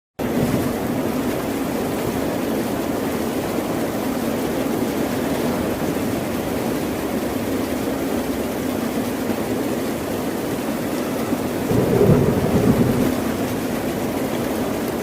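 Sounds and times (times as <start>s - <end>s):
ocean waves and surf: 10.5s - 15.0s.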